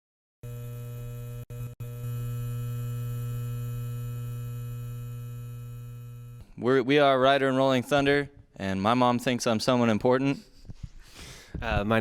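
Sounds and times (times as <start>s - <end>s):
electrical mains hum: 0.4s - 6.6s.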